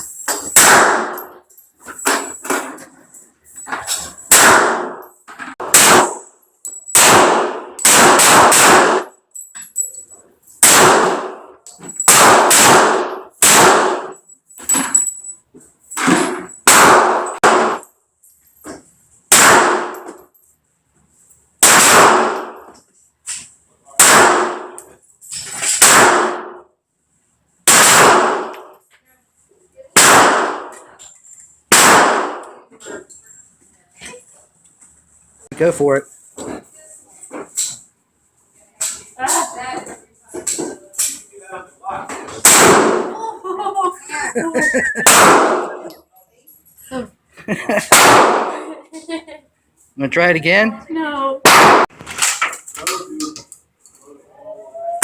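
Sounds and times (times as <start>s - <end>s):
handgun shots: 0.4s - 1.3s, 4.3s - 5.0s, 5.6s - 6.3s, 6.9s - 9.1s, 10.6s - 11.4s, 12.0s - 14.2s, 16.6s - 17.9s, 19.3s - 20.2s, 21.6s - 22.6s, 24.0s - 24.8s, 25.6s - 26.6s, 27.7s - 28.7s, 30.0s - 30.8s, 31.7s - 32.6s, 42.4s - 43.1s, 45.0s - 45.9s, 47.9s - 48.6s, 51.4s - 52.6s.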